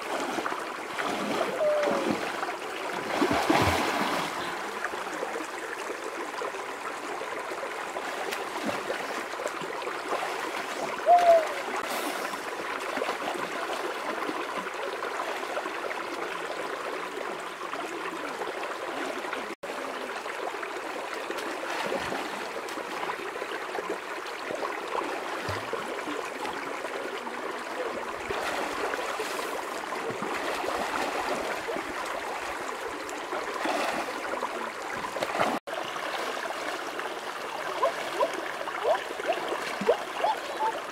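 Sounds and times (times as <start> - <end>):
river water rushing over stones: 0.0 - 6.0.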